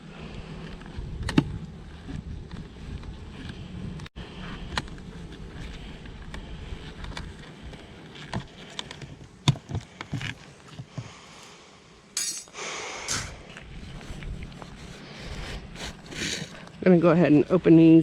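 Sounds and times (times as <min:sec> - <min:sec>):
scraping and rustling: 0:13.2 - 0:16.8.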